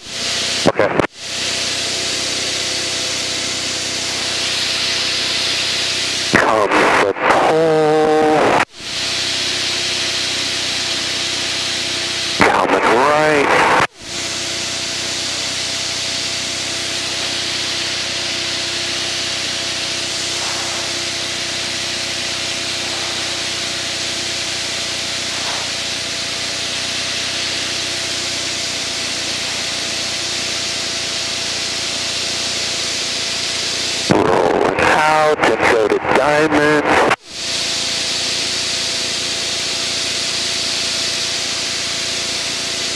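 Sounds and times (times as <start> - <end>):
airflow hiss: 0.0 - 6.4, 7.7 - 34.1
low engine hum: 0.0 - 42.9.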